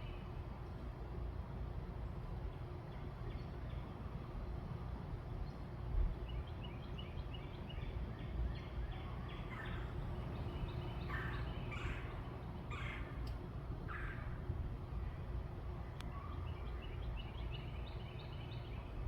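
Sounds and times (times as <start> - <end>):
low background rumble: 0.0 - 19.0
bird calling: 9.0 - 14.4.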